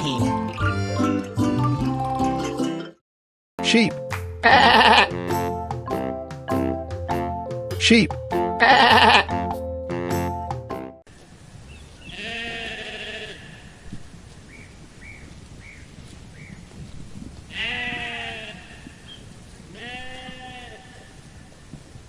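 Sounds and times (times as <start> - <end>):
sheep bleating: 4.5 - 5.4, 12.1 - 13.7, 17.5 - 18.9, 19.8 - 21.1.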